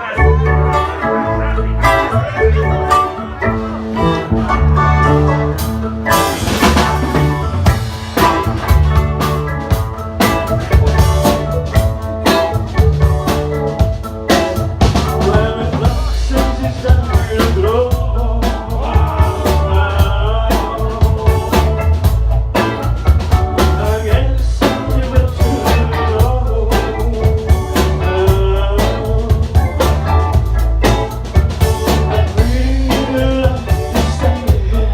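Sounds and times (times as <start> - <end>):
wavering melodic line: 0.0 - 24.1
bass guitar: 0.0 - 34.9
drum kit beat: 0.0 - 34.9
electric guitar: 0.0 - 34.9.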